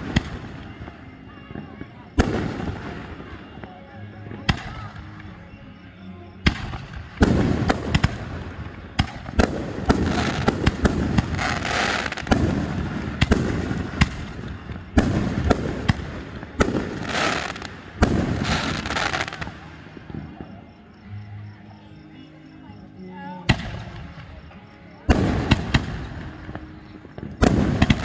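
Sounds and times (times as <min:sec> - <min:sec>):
fireworks booming: 0:00.0 - 0:03.6, 0:06.4 - 0:20.6, 0:25.0 - 0:28.0.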